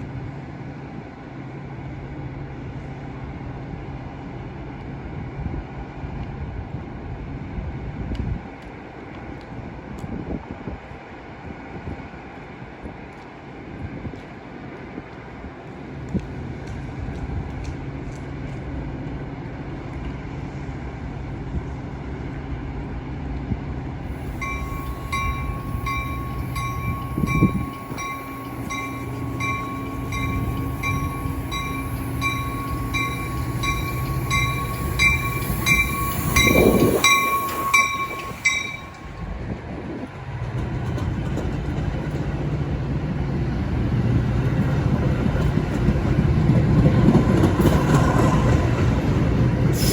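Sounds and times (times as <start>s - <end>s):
diesel train rumbling: 0.0s - 49.9s
bell ringing: 24.2s - 39.2s.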